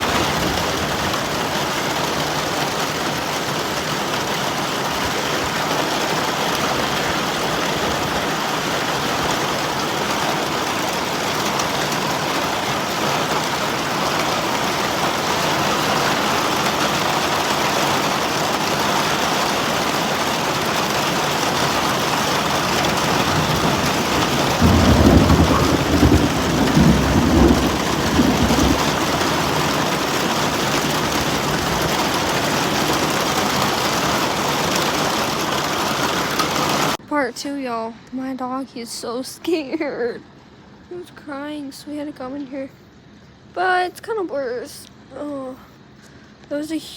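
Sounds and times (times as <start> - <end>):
thunder rumble: 0.0 - 4.1, 4.9 - 37.0
heavy rain: 0.0 - 37.0.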